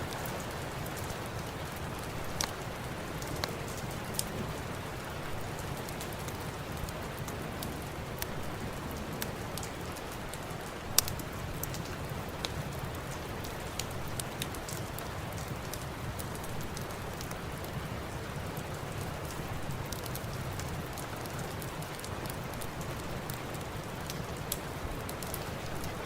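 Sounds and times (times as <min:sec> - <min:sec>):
rain hiss: 0:00.0 - 0:26.0
wood fire crackling: 0:00.0 - 0:26.0.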